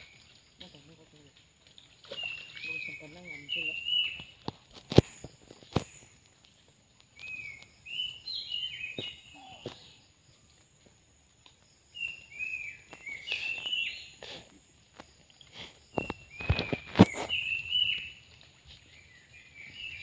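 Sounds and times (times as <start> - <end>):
bird singing: 0.0 - 4.4, 7.1 - 10.4, 11.9 - 14.2, 15.8 - 20.0.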